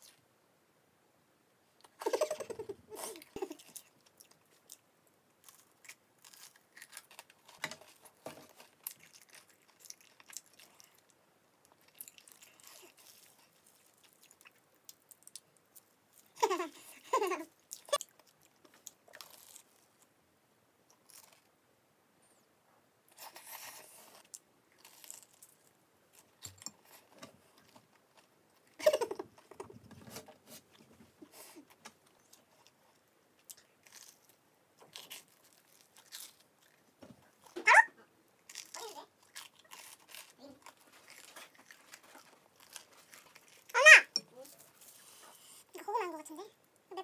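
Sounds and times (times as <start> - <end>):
crunchy chewing: 5.4 - 16.4, 23.1 - 28.8, 32.1 - 37.6, 38.4 - 45.7.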